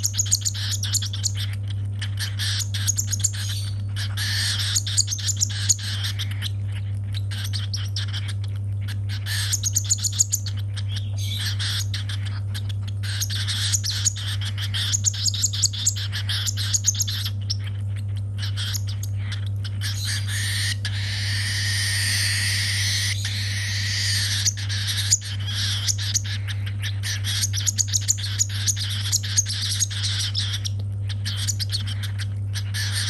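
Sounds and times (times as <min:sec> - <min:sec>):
chick raspy begging calls: 0:00.0 - 0:17.6, 0:18.2 - 0:33.0
steady low hum: 0:00.0 - 0:33.0.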